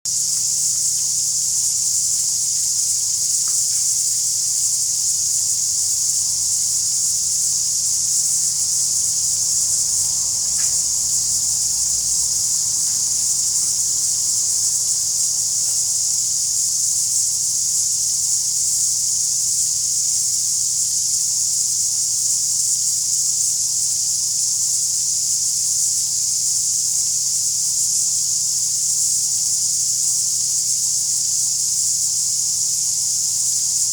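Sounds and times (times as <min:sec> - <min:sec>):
high-pitched hiss: 0:00.1 - 0:18.8.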